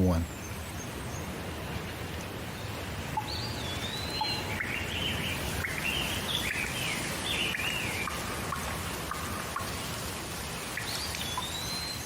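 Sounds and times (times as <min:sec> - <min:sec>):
steady rain falling: 0:00.0 - 0:12.0
bird singing whistled phrases: 0:03.2 - 0:08.1, 0:10.8 - 0:12.0.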